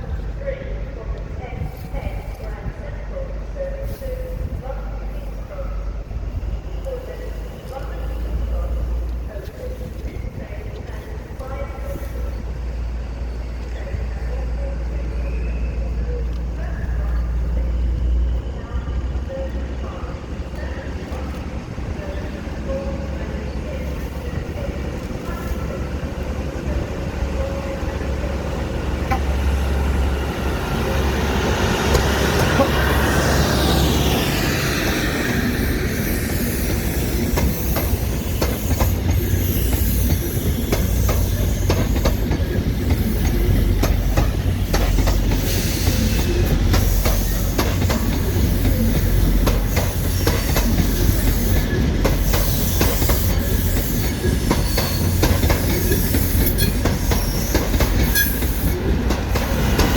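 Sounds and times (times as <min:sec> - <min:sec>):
train passing: 0:00.0 - 0:59.9
train wheels clicking over rail joints: 0:23.8 - 0:33.1, 0:36.0 - 0:59.9.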